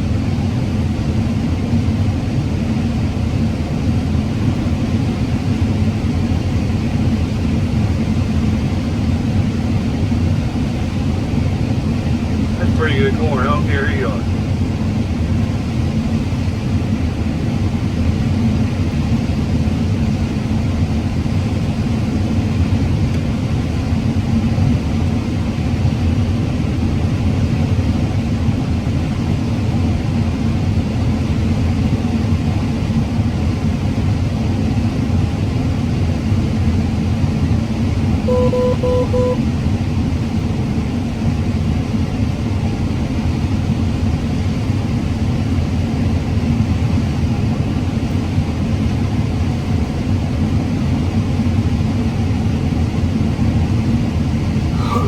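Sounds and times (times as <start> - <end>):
combine harvester droning: 12.1 - 14.5, 38.3 - 39.7, 54.7 - 55.0
short electronic beeps: 38.3 - 39.4.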